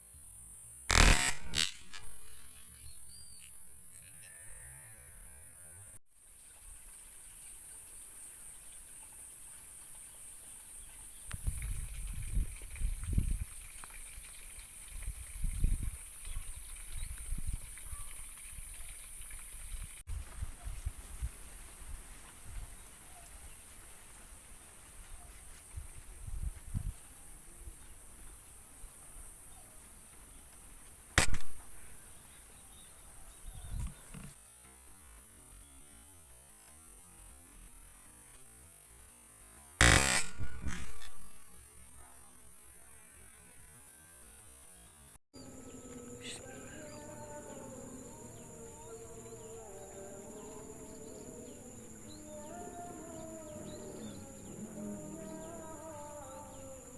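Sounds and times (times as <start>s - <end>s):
insects chirring: 0.0s - 5.4s, 45.4s - 56.9s
air rifle shot: 0.9s - 2.2s, 31.2s - 31.7s, 39.8s - 41.4s
sharp click: 0.9s - 2.2s, 31.2s - 31.7s.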